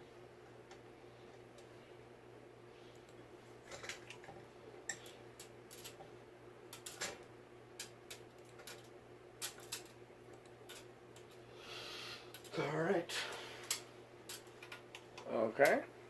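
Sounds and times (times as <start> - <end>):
steady low hum: 0.0 - 16.0
small parts clicking: 4.9 - 6.0, 6.7 - 7.2, 7.8 - 11.4, 13.6 - 15.8.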